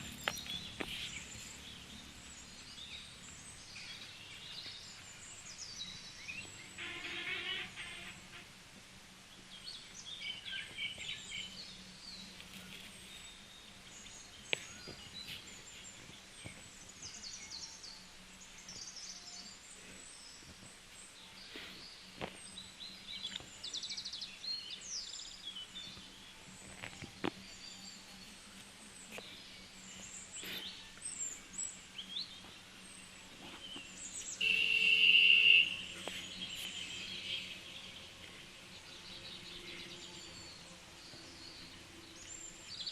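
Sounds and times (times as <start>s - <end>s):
birds chirping and calling: 0.0s - 6.9s, 21.4s - 42.9s
outdoor background noise: 0.0s - 42.9s.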